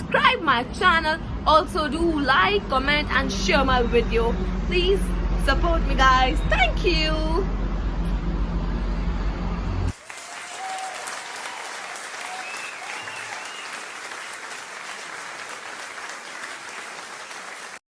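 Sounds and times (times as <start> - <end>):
crowd applause and cheering: 9.6 - 17.8
faint whistles and shouts: 12.3 - 13.8.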